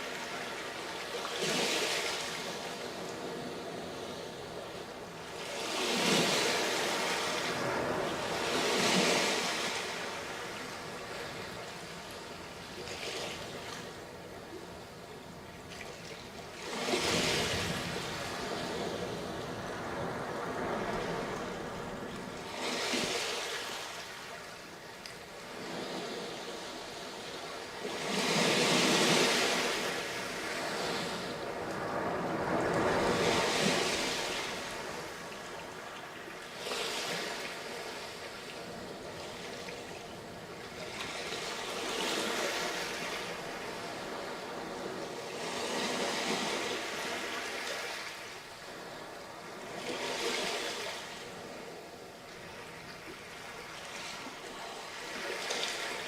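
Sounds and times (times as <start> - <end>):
waves washing onto a beach: 0.0 - 56.0.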